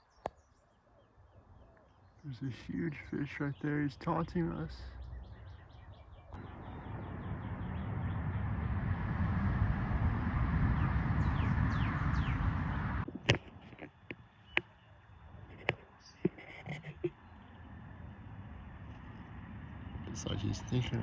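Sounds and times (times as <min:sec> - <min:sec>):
bird chirping: 0:00.0 - 0:09.2, 0:10.6 - 0:13.1, 0:13.9 - 0:21.0
wind on microphone: 0:05.3 - 0:14.2.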